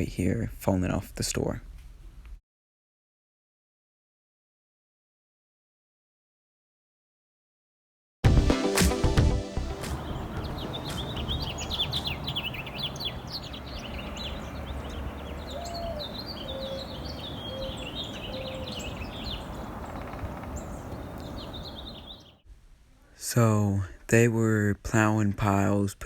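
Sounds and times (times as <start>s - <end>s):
small birds chirping: 8.6s - 22.4s.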